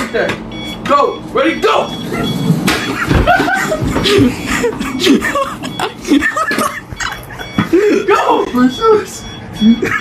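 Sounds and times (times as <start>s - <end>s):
young men laughing and talking: 2.0s - 10.0s.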